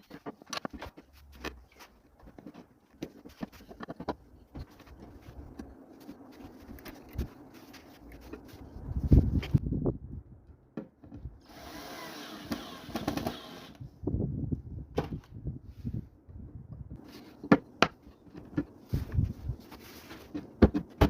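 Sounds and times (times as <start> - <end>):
objects knocking and clattering: 0.0 - 5.7
power drill whirring: 11.4 - 13.8.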